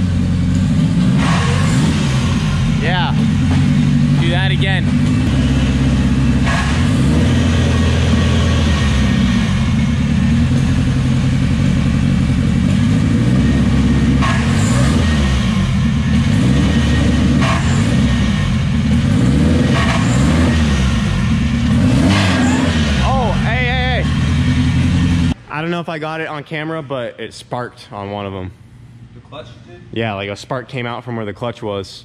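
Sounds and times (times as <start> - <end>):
car engine running under load: 0.0 - 25.4
clutch crunching: 0.0 - 25.4.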